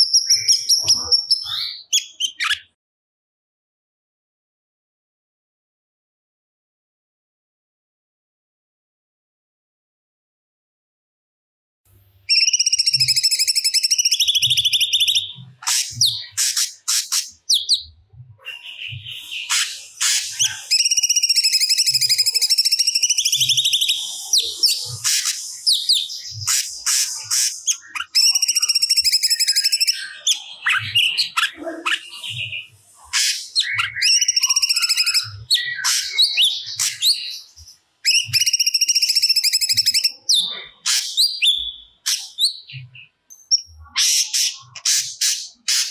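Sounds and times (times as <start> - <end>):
bird singing trilled phrases: 0.0 - 2.8, 12.3 - 45.9.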